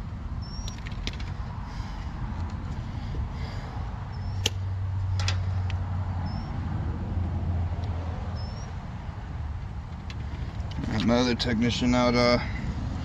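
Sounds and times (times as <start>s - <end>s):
faint high chirp: 8.4s - 8.8s.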